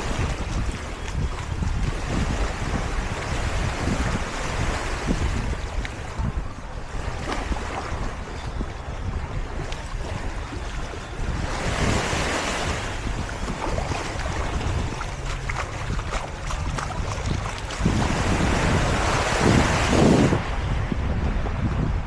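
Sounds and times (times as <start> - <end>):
wind buffeting microphone: 0.0 - 22.0
surf breaking on beach: 11.5 - 21.1.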